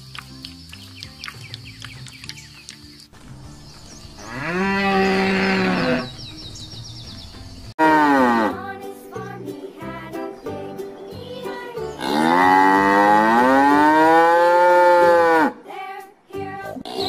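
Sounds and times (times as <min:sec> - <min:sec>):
light background music: 0:00.0 - 0:13.3, 0:14.8 - 0:17.0
cow mooing: 0:04.2 - 0:06.2, 0:07.8 - 0:08.5, 0:12.0 - 0:15.6.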